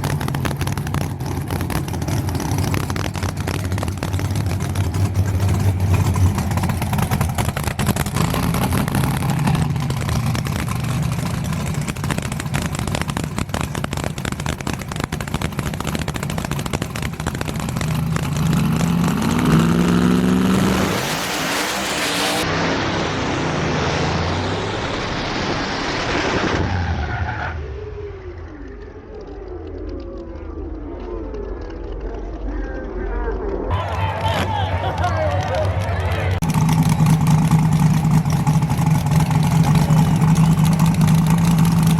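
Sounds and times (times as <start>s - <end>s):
race car engine revving: 0.0s - 27.3s, 33.7s - 41.9s
loud rushing noise: 19.4s - 27.3s.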